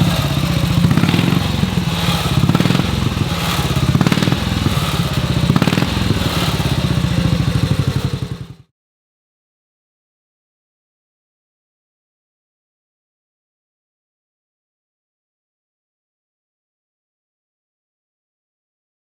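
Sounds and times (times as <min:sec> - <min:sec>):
engine ticking over: 0:00.0 - 0:08.7.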